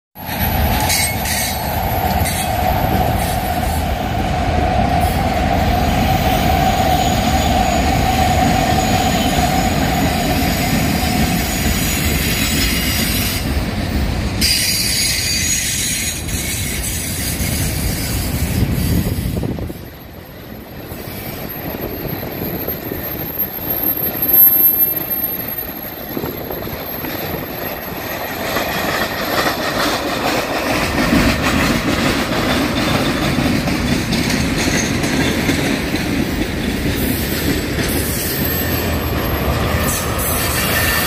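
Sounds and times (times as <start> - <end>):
high wheel squeal: 0.2 - 3.8, 14.4 - 28.4, 37.0 - 41.0
steel wheels rumbling on rail: 0.2 - 41.0.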